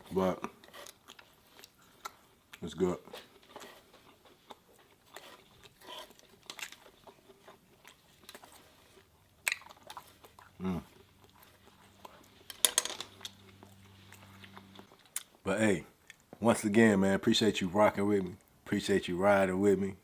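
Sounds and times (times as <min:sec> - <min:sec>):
person chewing food: 0:00.4 - 0:15.4
low voice hum: 0:10.6 - 0:11.0.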